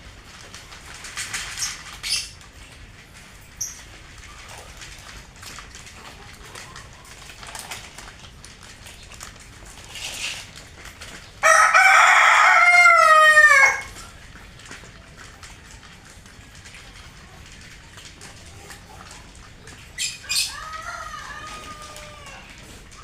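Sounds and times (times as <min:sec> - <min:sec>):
rooster crowing: 0:11.4 - 0:13.9, 0:20.3 - 0:22.6.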